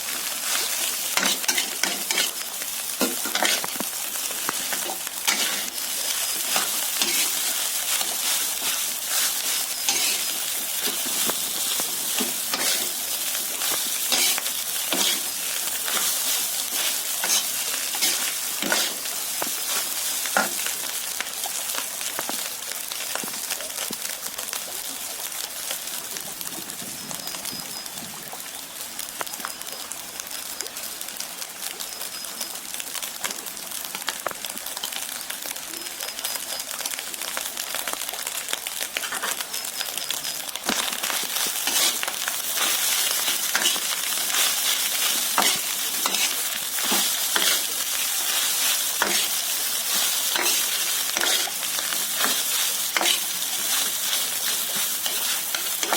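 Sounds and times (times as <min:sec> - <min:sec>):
food sizzling in hot oil: 0:00.0 - 0:55.9
spatula scraping and clicking on pan: 0:00.8 - 0:02.4, 0:03.0 - 0:03.8, 0:04.4 - 0:05.8, 0:06.5 - 0:13.0, 0:13.6 - 0:19.5, 0:40.2 - 0:55.9.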